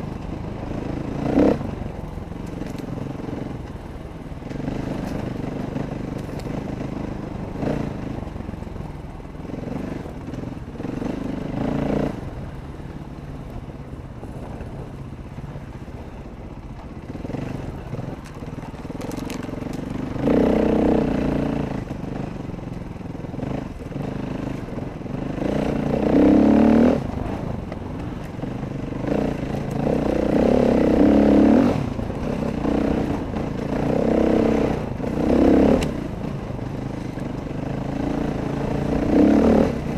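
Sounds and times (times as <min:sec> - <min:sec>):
dirt bike engine revving: 0:00.0 - 0:01.8, 0:04.6 - 0:08.2, 0:09.5 - 0:12.3, 0:19.5 - 0:22.3, 0:23.3 - 0:27.5, 0:28.1 - 0:36.4, 0:37.0 - 0:39.9.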